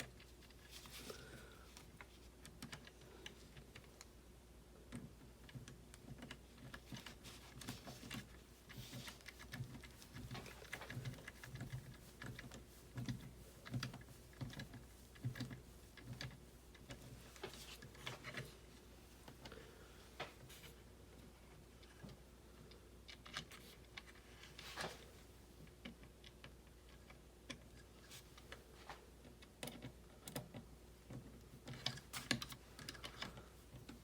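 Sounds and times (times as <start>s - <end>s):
plastic parts clicking: 29.2s - 34.0s.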